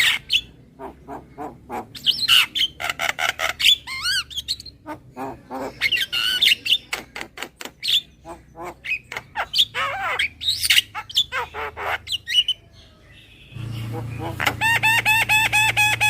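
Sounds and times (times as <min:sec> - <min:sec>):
myna squawking and clicking: 0:00.0 - 0:12.4.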